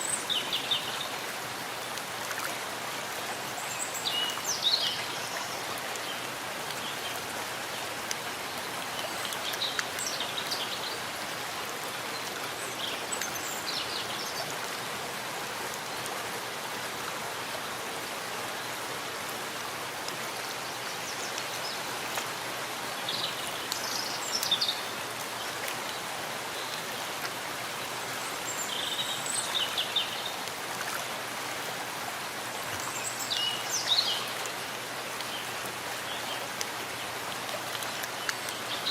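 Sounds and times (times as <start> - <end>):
rain on leaves: 0.0 - 38.9.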